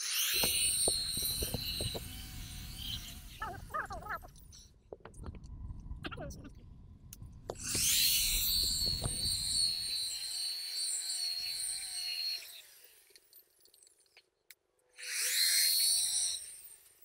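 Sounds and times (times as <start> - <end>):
electric polisher whining: 0.0 - 3.8, 7.5 - 13.2.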